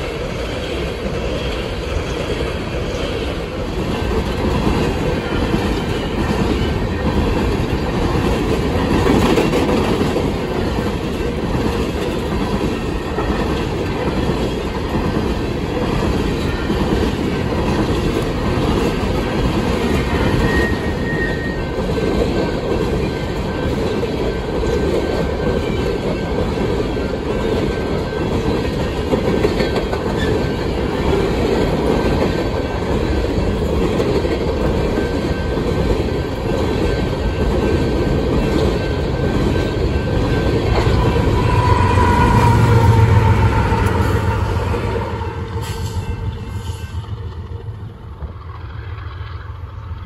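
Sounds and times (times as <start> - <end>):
diesel locomotive engine hum: 0.0 - 50.0
freight cars rumbling past: 39.0 - 50.0.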